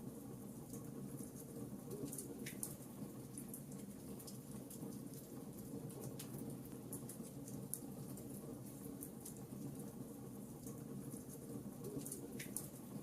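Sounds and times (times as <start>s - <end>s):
fireplace fire crackling: 0.1s - 13.0s.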